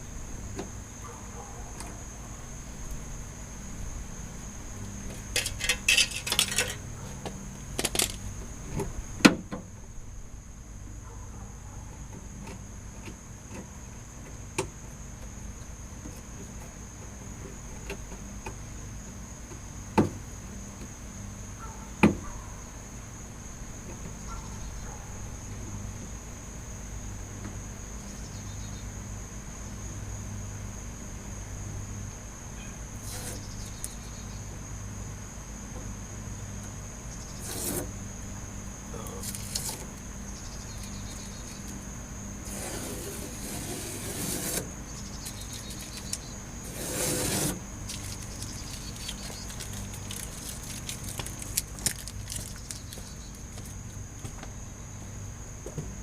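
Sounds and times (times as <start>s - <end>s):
rustling: 45.2s - 54.0s.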